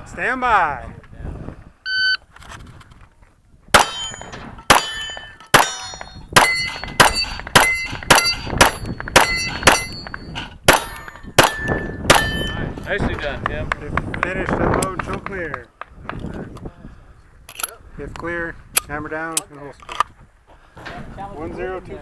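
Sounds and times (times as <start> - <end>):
pistol shots: 3.7 - 12.6
metallic ringing: 3.8 - 12.9.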